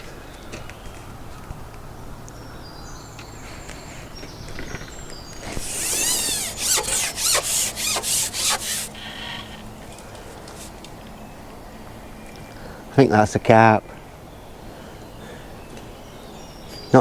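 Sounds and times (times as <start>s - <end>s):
fishing pole rubbing strokes: 5.6s - 9.0s, 10.5s - 10.8s.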